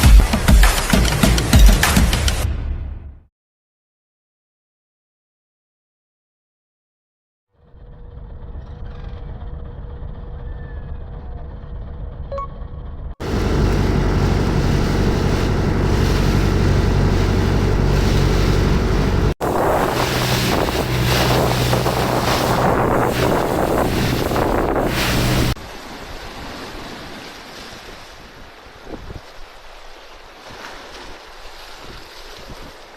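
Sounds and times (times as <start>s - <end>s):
boat engine running: 13.2s - 25.6s
wind on microphone: 13.2s - 25.6s
splashing spray: 13.2s - 26.6s
rushing water: 13.2s - 32.9s
waves washing: 13.2s - 32.9s.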